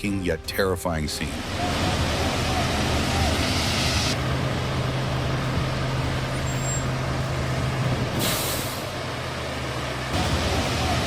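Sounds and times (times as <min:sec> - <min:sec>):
truck engine humming: 0:00.0 - 0:11.0
air brake hiss: 0:08.2 - 0:08.9.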